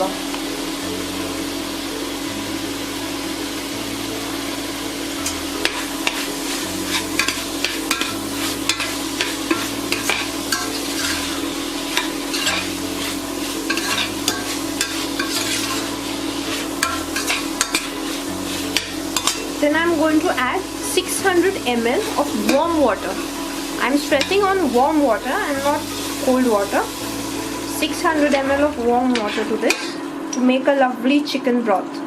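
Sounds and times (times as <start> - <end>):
food sizzling in a pot: 0.0 - 31.4
spoon scraping a pot: 5.2 - 19.5.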